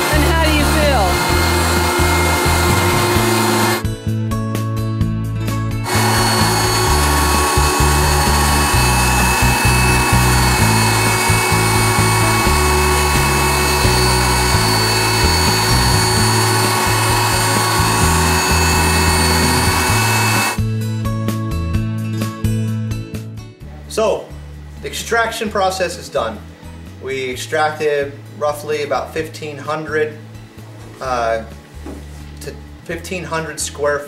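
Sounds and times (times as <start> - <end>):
vacuum running with whine: 0.0 - 3.8, 5.8 - 20.7
background music with guitar: 0.0 - 32.9.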